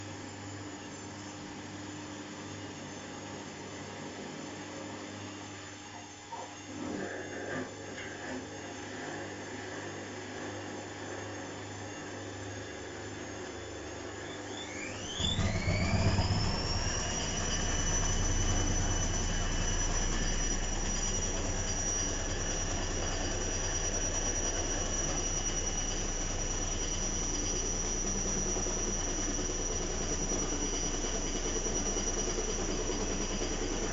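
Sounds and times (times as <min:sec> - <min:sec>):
motor whine: 0:06.6 - 0:33.9
washing machine running: 0:08.2 - 0:33.9
spinning drum rumble: 0:15.2 - 0:33.9.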